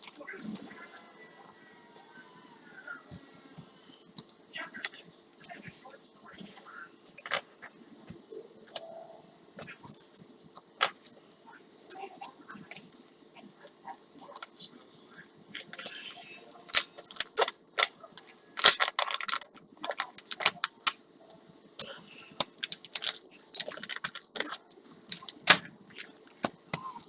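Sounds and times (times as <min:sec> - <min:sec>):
packaging crinkling and rustling: 0:15.6 - 0:21.0, 0:22.3 - 0:26.5.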